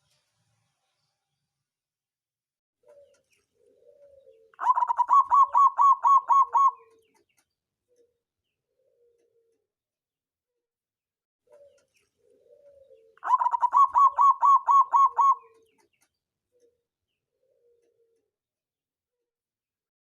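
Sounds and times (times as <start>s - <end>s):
dove cooing: 2.8s - 7.2s, 8.7s - 9.7s, 11.5s - 15.8s, 16.6s - 18.3s.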